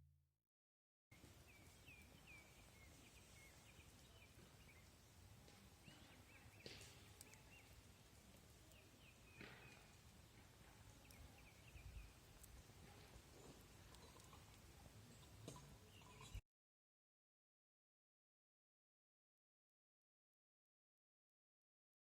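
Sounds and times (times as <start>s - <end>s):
faint clicks: 6.6s - 7.7s.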